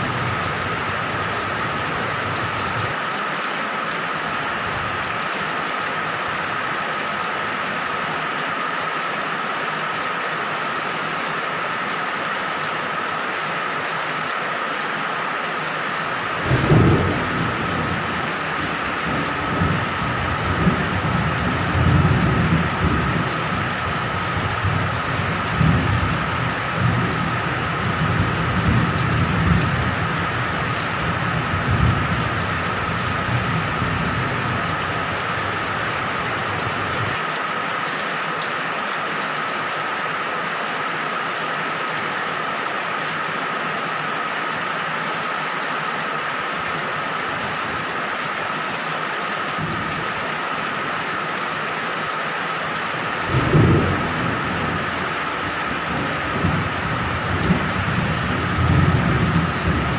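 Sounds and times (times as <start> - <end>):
rolling thunder: 0.0 - 2.9, 16.4 - 37.2, 53.2 - 59.9
steady rain: 0.0 - 59.9.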